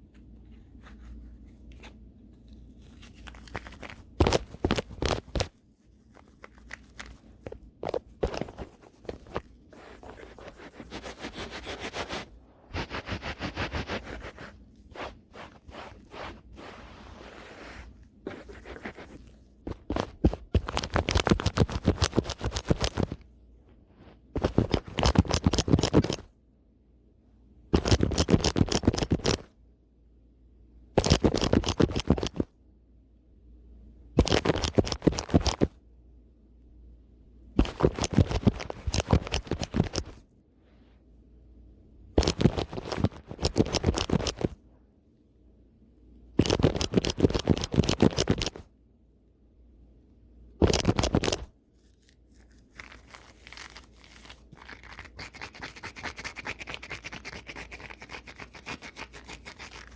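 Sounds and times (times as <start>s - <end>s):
brush scrubbing microphone: 7.9s - 23.2s, 50.6s - 59.9s.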